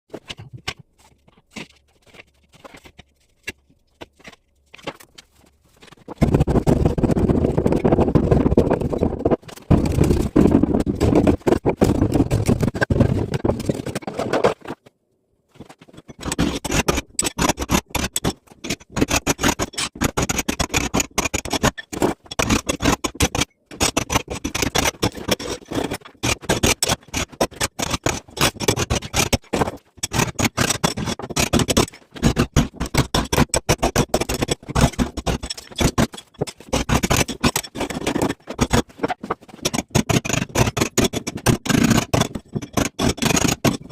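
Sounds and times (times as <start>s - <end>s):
hand tool chipping masonry: 15.9s - 43.9s.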